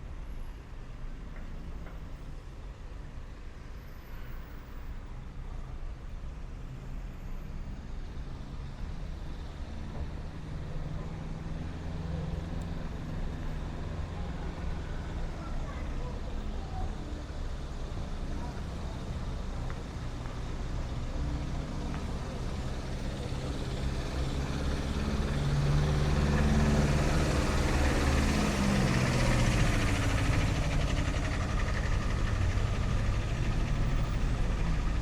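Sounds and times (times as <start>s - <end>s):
vehicle engine passing by: 8.4s - 35.0s.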